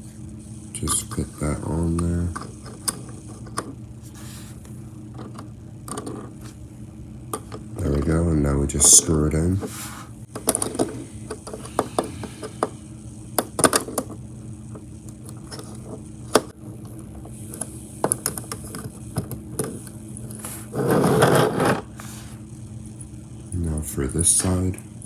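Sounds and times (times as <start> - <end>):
loud rasping scrape: 20.5 - 22.3.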